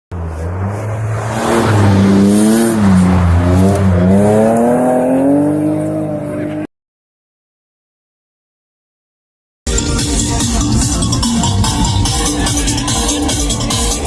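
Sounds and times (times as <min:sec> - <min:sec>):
truck engine revving: 0:00.1 - 0:06.6.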